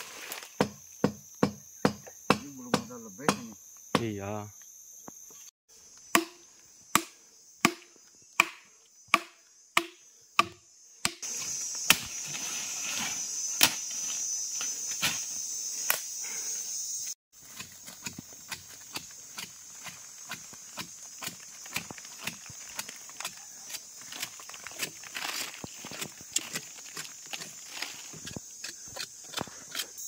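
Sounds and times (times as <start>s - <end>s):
high insect drone: 0.0s - 30.0s
blade chopping wood: 0.6s - 4.1s, 6.1s - 12.2s, 17.4s - 25.0s.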